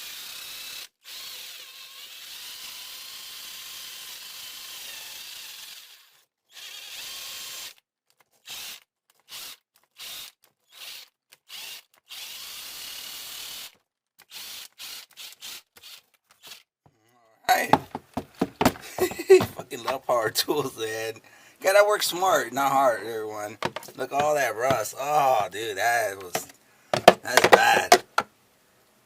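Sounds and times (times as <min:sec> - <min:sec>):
power drill scrubbing metal: 0:22.7 - 0:28.2.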